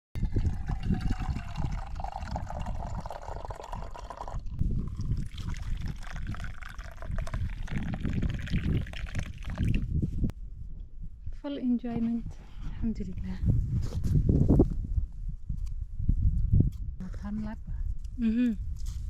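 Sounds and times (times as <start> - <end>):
liquid pouring into a glass: 0.2 - 9.9.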